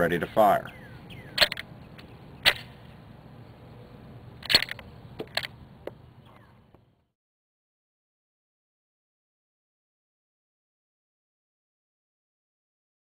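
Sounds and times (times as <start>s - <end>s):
pistol mechanism clicks: 1.4s - 1.7s, 4.4s - 5.6s.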